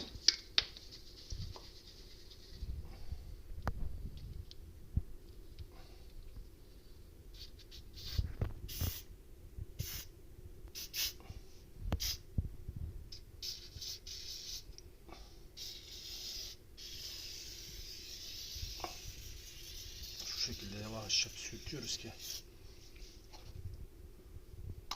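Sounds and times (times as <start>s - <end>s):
aerosol spray paint hissing: 7.3s - 9.1s, 9.8s - 10.1s, 10.7s - 11.2s, 12.0s - 12.2s, 13.1s - 14.7s, 15.6s - 23.2s.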